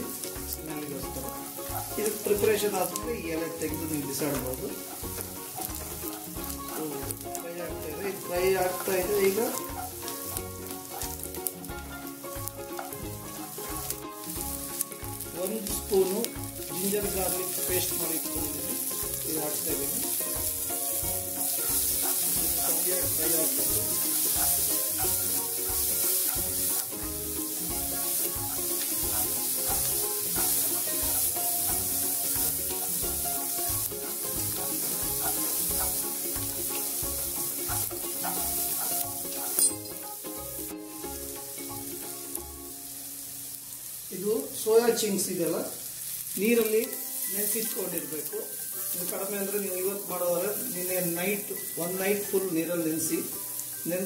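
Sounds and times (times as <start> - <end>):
onions sizzling in hot oil: 0.0 - 54.0
wooden spatula scraping pan: 16.8 - 39.8.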